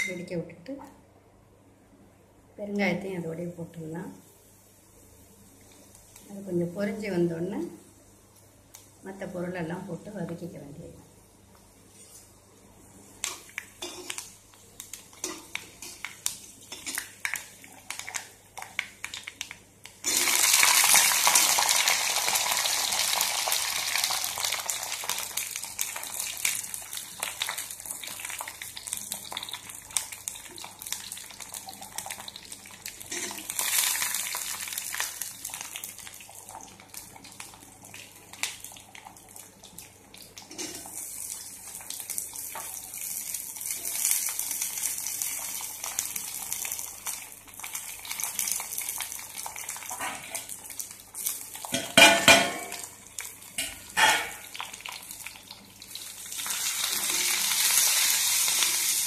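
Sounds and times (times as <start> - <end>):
loud sizzle in hot oil: 13.2 - 59.0.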